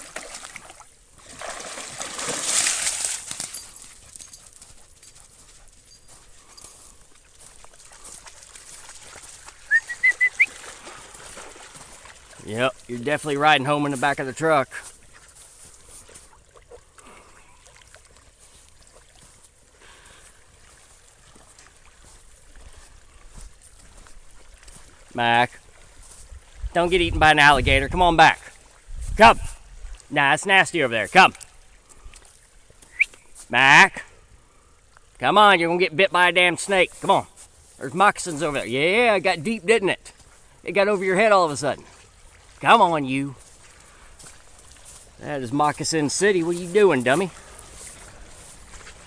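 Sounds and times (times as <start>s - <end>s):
dog splashing through water: 0.0s - 14.1s, 14.8s - 26.7s
water trickling: 5.8s - 14.1s.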